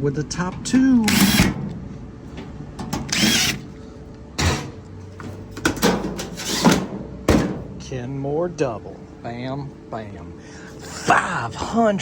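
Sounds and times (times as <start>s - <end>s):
cordless drill driving screws: 1.1s - 1.6s, 3.1s - 3.7s.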